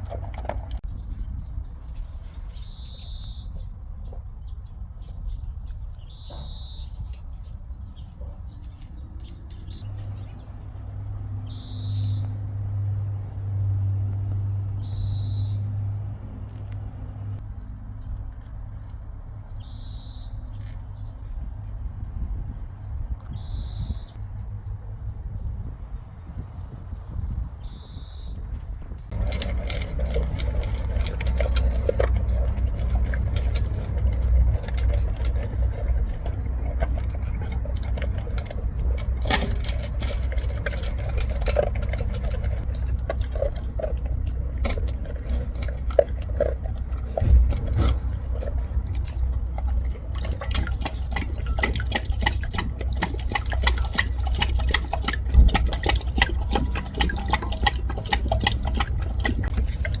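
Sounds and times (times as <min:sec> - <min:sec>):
dog lapping water: 0:00.0 - 0:00.9, 0:29.1 - 1:00.0.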